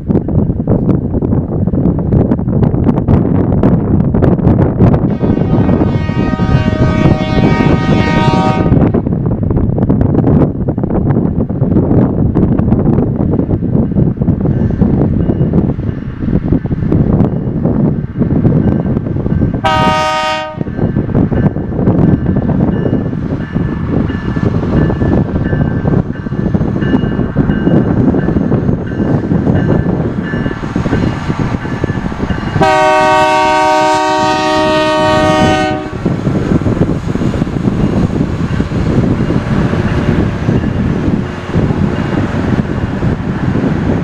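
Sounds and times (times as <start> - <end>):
train rumbling past: 0.0 - 44.0
train horn blasts: 5.1 - 9.0, 19.6 - 20.7, 32.6 - 36.1.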